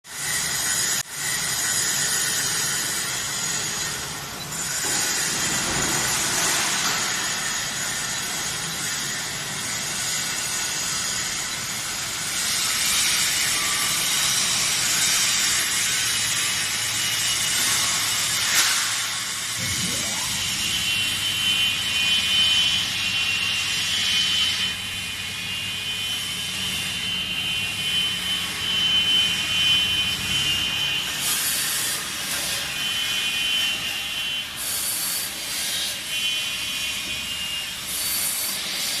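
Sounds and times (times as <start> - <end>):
high whine of saw blade: 0.1 - 39.0
wood cutting saw hissing: 34.4 - 39.0.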